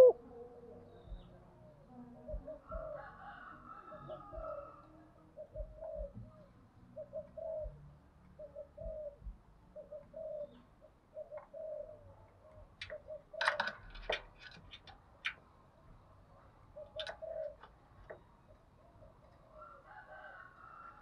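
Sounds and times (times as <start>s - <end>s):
dove cooing: 0.0s - 1.4s, 2.0s - 4.8s, 5.4s - 6.4s, 7.0s - 7.8s, 8.4s - 12.1s, 12.8s - 14.2s, 16.7s - 21.0s.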